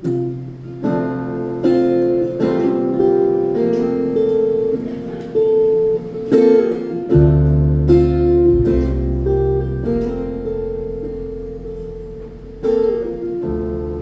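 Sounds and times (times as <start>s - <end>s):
strummed acoustic guitar chords: 0.0s - 14.0s
deep bass note: 7.2s - 12.7s.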